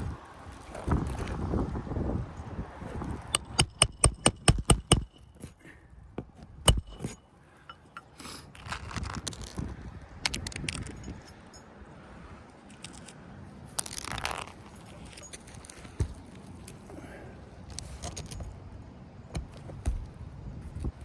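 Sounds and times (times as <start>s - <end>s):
hammer striking nail: 3.4s - 5.2s, 6.7s - 7.2s
light clicks and scraping: 12.4s - 18.6s.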